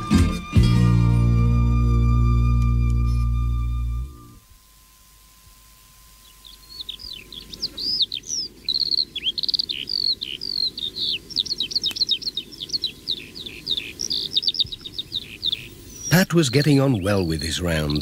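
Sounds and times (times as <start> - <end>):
birds twittering: 6.1 - 18.0.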